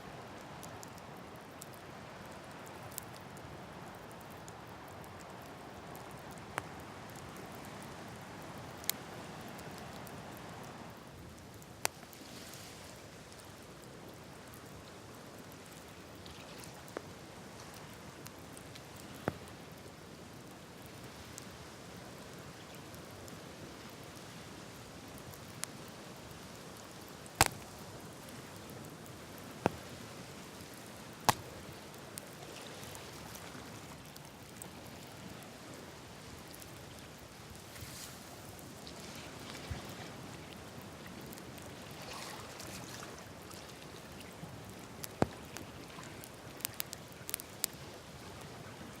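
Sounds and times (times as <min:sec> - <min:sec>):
wood fire crackling: 0:00.1 - 0:41.9, 0:43.1 - 0:49.0
fire popping: 0:13.2 - 0:38.8, 0:43.3 - 0:48.5.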